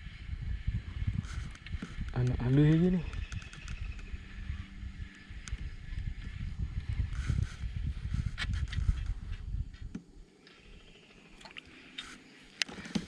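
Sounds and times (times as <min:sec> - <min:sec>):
faint water sound: 0:10.6 - 0:12.7.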